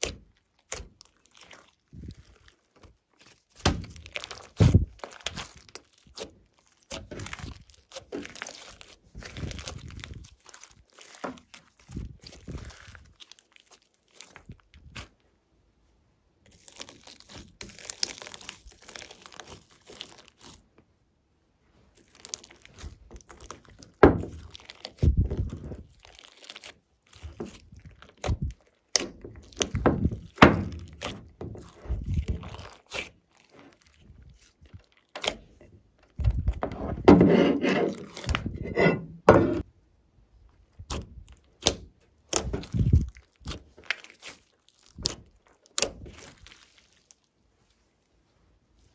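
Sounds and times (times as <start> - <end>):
slime squelching and crackling: 0.0 - 15.4, 16.4 - 20.8, 21.8 - 39.7, 40.3 - 48.9
slime thunks: 3.5 - 13.1, 22.6 - 25.9, 27.1 - 33.1, 36.2 - 39.6, 40.8 - 43.8.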